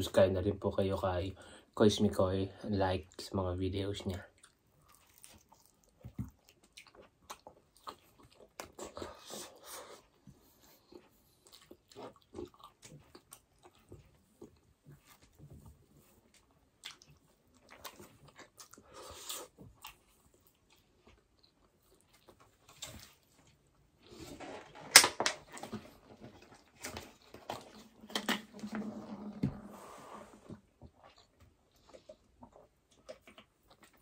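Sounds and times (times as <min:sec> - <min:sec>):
close chewing of soft food: 0:03.9 - 0:24.2, 0:30.6 - 0:34.0.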